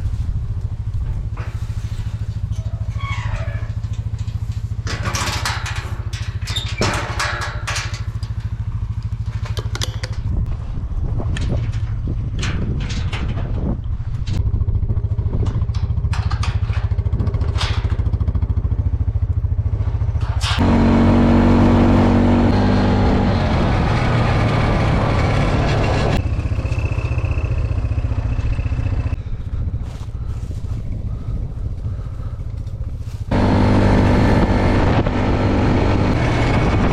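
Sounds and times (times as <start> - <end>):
vehicle engine running: 0.0 - 36.9
clicks and clatter: 3.6 - 10.5, 15.3 - 18.4.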